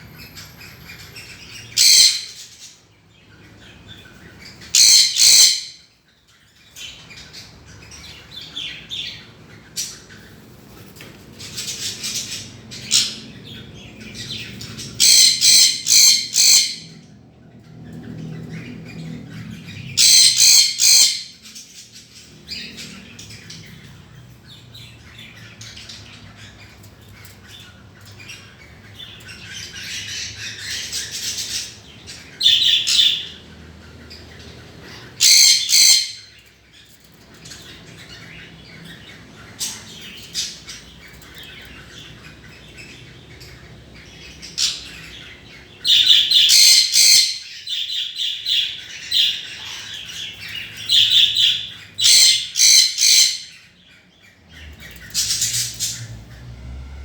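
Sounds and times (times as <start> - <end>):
birds chattering and warbling: 0.0 - 57.0
loud high-pitched bird squawks: 1.7 - 2.4, 4.7 - 5.8, 15.0 - 16.9, 20.0 - 21.4, 35.2 - 36.3, 45.9 - 47.5, 51.0 - 53.5.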